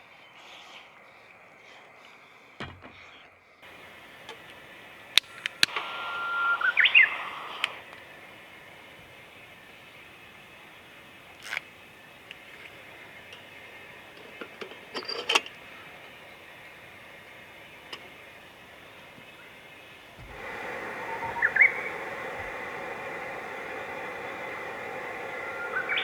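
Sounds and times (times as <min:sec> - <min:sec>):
steady hiss: 0:00.0 - 0:26.0
camp gear clicking and clinking: 0:03.6 - 0:05.9, 0:07.6 - 0:23.6
bird chirps: 0:03.6 - 0:26.0.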